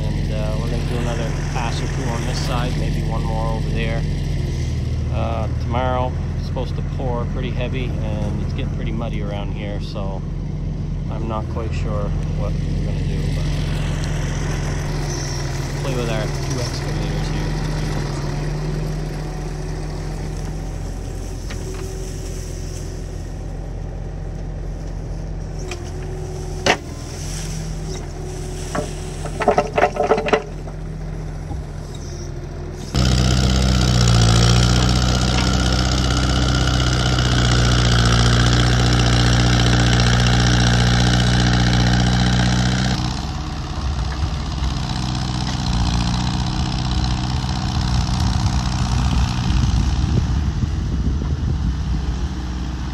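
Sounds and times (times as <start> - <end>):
excavator diesel engine running: 0.0 - 52.9
metallic knock and clanks: 28.7 - 32.0.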